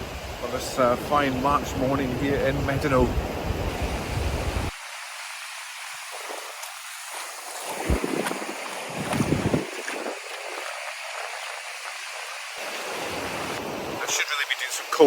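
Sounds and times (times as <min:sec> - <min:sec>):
wind rumbling on microphone: 0:00.0 - 0:04.8, 0:07.6 - 0:14.0
surf washing onto beach: 0:00.0 - 0:15.0.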